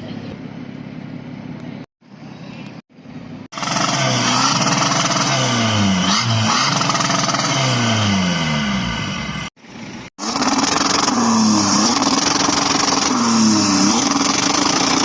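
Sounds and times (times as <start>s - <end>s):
car engine revving: 3.5s - 15.0s.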